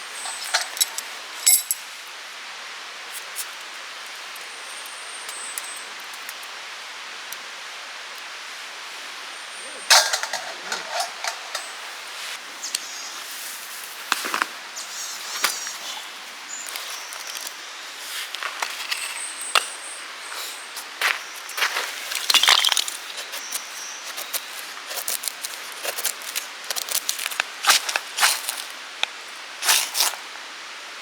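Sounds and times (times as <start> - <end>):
campfire crackling and popping: 20.8 - 30.2.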